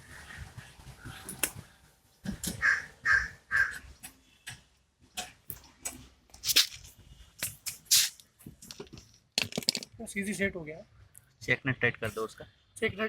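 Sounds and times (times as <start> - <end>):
crow cawing: 2.6 - 3.8.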